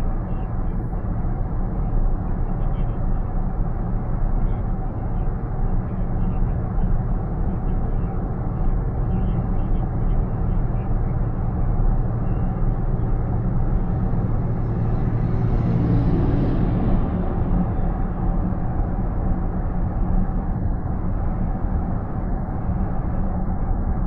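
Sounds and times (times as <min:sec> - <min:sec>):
road and tyre rumble in car: 0:00.0 - 0:24.0.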